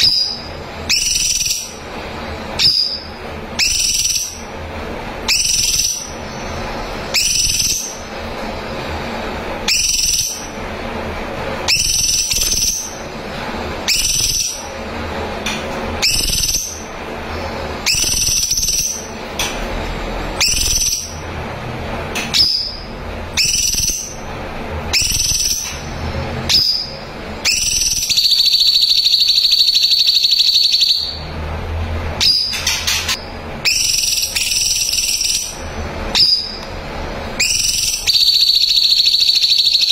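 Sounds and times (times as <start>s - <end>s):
bird whistled calls: 0.0s - 1.8s, 2.6s - 4.5s, 5.3s - 8.1s, 9.6s - 10.5s, 11.7s - 13.0s, 13.8s - 14.7s, 16.0s - 16.9s, 17.8s - 19.2s, 20.4s - 21.2s, 22.3s - 24.2s, 24.9s - 25.8s, 26.5s - 31.2s, 32.2s - 36.6s, 37.4s - 39.9s
bird long trilled note: 26.5s - 31.2s.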